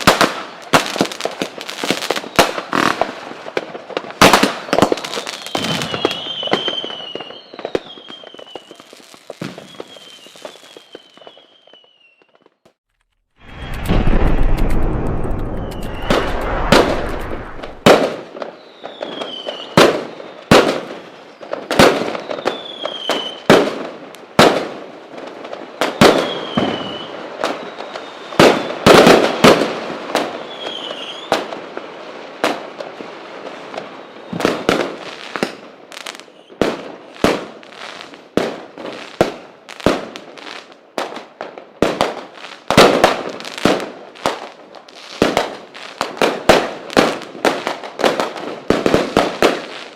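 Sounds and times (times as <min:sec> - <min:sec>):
falling firework whistles: 0:00.0 - 0:03.0, 0:04.3 - 0:12.8, 0:13.4 - 0:23.5, 0:25.7 - 0:31.6, 0:33.6 - 0:36.6
firework bangs: 0:00.0 - 0:12.5, 0:13.4 - 0:20.9, 0:25.5 - 0:31.6, 0:41.8 - 0:44.5.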